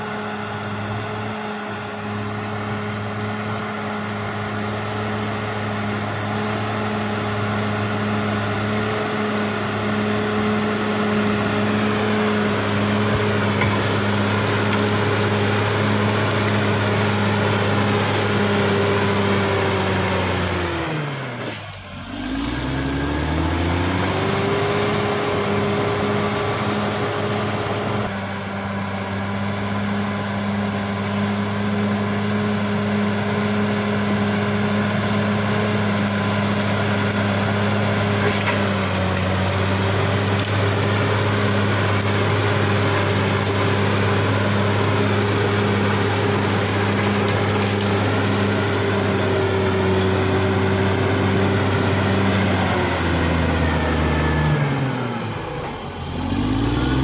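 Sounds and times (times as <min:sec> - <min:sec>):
bulldozer diesel engine running: 0:00.0 - 0:57.0
crackling sounds: 0:35.8 - 0:44.2.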